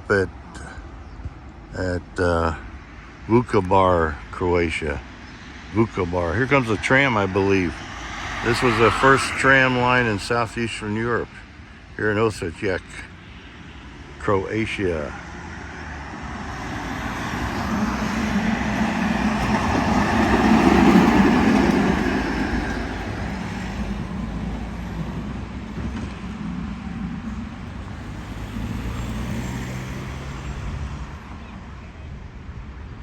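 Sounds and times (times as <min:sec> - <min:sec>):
tram passing by: 0:06.5 - 0:10.6, 0:16.0 - 0:31.6.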